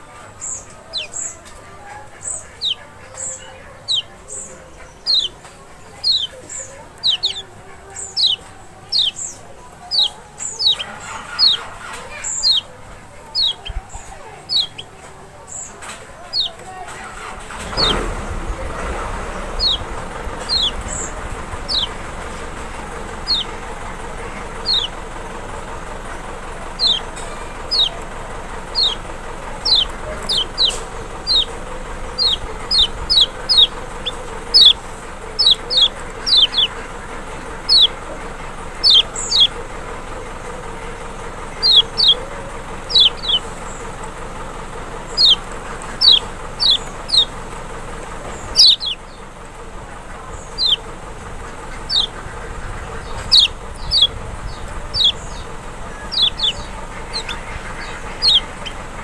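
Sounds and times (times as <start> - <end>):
bird high downward whistles: 17.6 - 23.6, 24.5 - 25.0, 26.8 - 28.0, 28.7 - 34.8, 38.8 - 39.6, 41.6 - 42.2, 42.9 - 43.9, 45.1 - 47.3, 48.5 - 49.0, 50.5 - 50.9, 51.8 - 52.2, 53.0 - 58.8.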